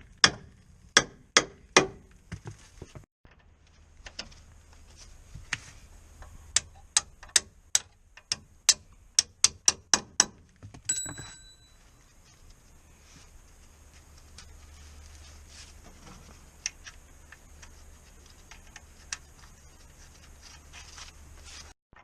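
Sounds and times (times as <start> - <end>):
short ringing tone: 10.9 - 12.0.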